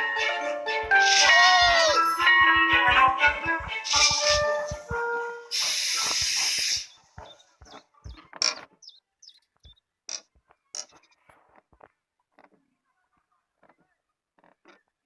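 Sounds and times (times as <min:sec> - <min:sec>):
cheerful music: 0:00.0 - 0:06.2
cartoon steam hiss: 0:05.5 - 0:06.9.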